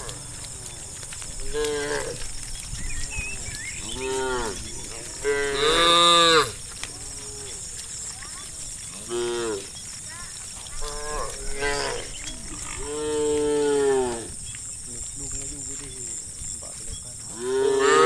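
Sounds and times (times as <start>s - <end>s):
cows mooing: 0.0s - 7.9s, 8.8s - 9.9s, 10.7s - 14.5s, 17.3s - 18.0s.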